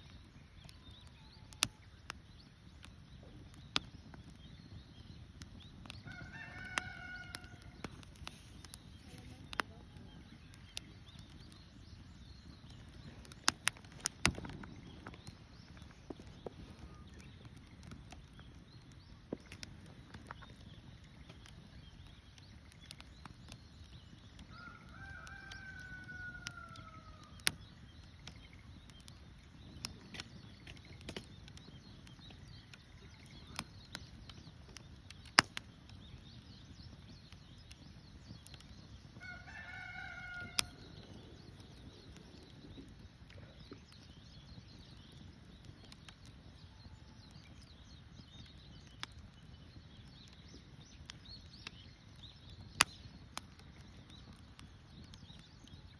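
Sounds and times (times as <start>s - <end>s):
campfire crackling: 0.0s - 55.9s
rooster crowing: 6.1s - 7.8s, 24.5s - 27.3s, 39.2s - 40.8s.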